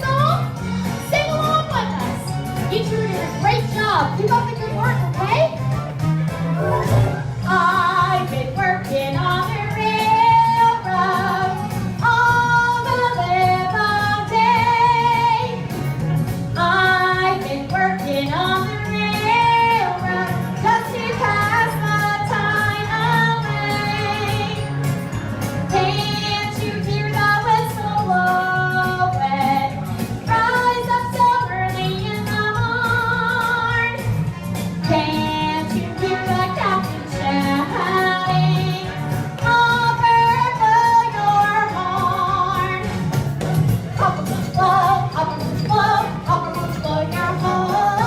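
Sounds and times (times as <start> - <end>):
backing music: 0.0 - 48.0
woman singing: 7.4 - 15.7, 16.6 - 24.7, 25.7 - 34.1, 34.8 - 43.0, 44.0 - 48.0.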